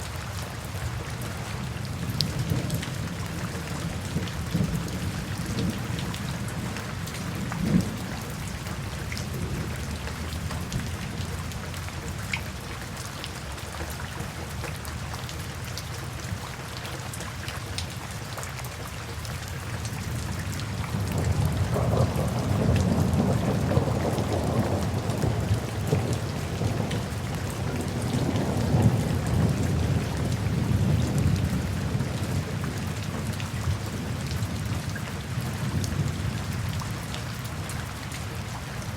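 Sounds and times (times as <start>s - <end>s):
steady rain falling: 0.0s - 38.9s
rolling thunder rumble: 2.0s - 11.5s, 20.9s - 36.8s.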